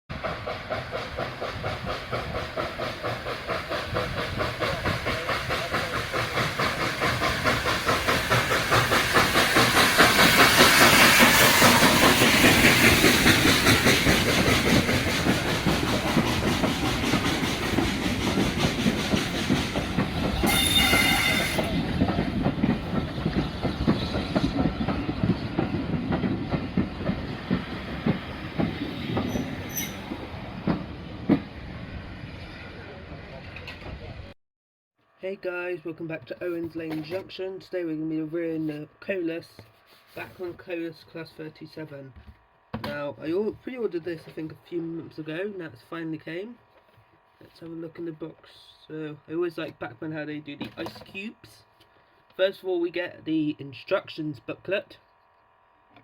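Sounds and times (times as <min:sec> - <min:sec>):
train wheels clicking on rails: 0:00.1 - 0:31.6.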